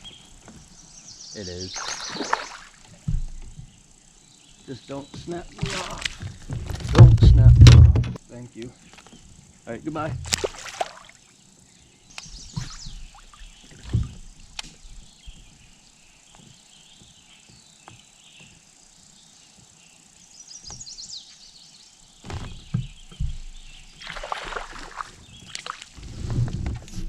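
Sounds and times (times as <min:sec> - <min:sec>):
water sloshing: 0:01.8 - 0:03.5, 0:05.2 - 0:08.2, 0:10.0 - 0:11.2, 0:22.4 - 0:26.0
knocks against kayak hull: 0:05.2 - 0:08.2, 0:13.7 - 0:14.8.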